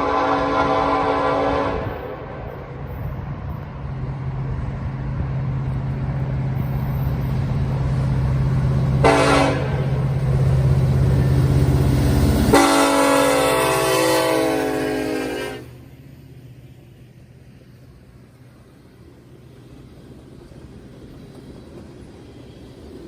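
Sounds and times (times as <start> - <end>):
locomotive air horn blasts: 0.0 - 2.5, 9.0 - 10.0, 12.4 - 15.8
locomotive engine running: 0.0 - 23.0.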